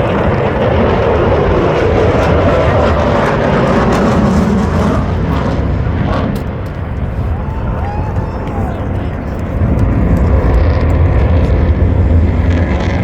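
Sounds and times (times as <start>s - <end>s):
airplane flying past: 0.0s - 13.0s.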